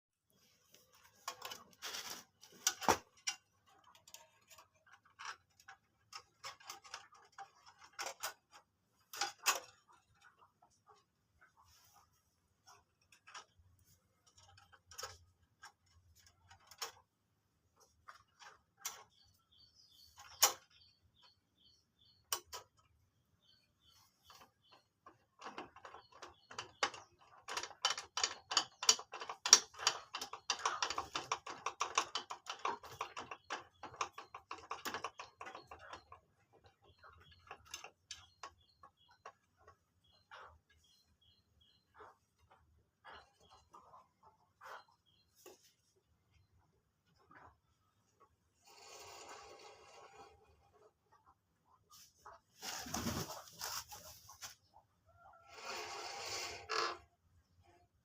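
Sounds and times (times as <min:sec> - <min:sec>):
rapid clicking and rattling: 0:23.8 - 0:41.0.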